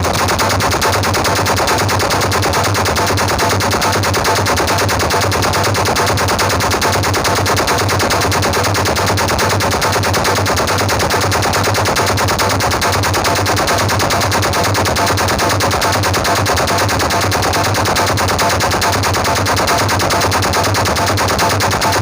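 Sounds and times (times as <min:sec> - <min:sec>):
machine-gun fire with heavy bass: 0:00.0 - 0:22.0.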